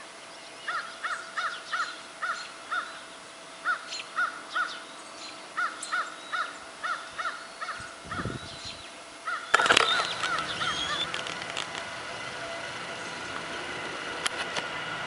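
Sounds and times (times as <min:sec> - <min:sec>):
bird cawing: 0:00.6 - 0:04.8, 0:05.5 - 0:08.4, 0:09.2 - 0:13.4.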